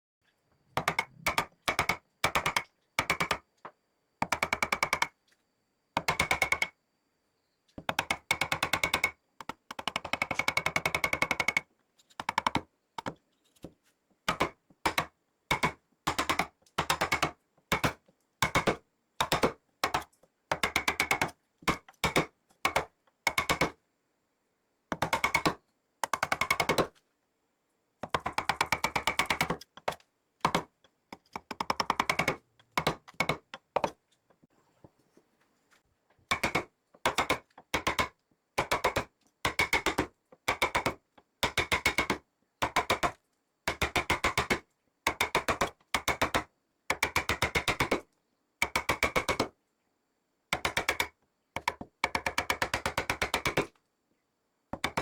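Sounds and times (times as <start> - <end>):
power chisel tapping into wood: 0.8 - 3.4, 4.2 - 5.1, 7.8 - 13.2, 28.0 - 34.0, 36.3 - 43.1, 54.8 - 55.0.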